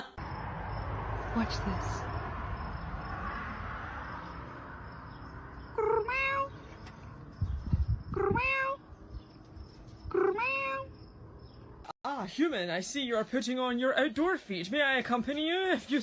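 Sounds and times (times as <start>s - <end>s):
cat meowing: 5.8s - 6.6s, 8.1s - 8.9s, 10.1s - 11.0s.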